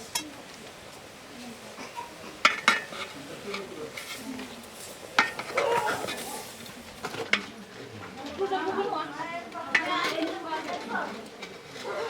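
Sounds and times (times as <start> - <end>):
utensil stirring in pot: 0.0 - 7.9.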